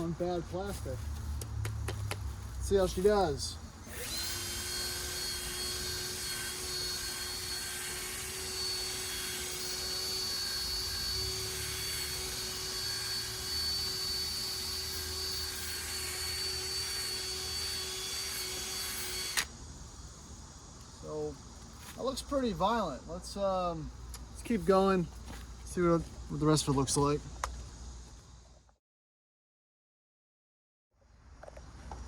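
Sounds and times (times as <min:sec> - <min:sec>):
power drill sanding plastic: 0:03.9 - 0:19.5.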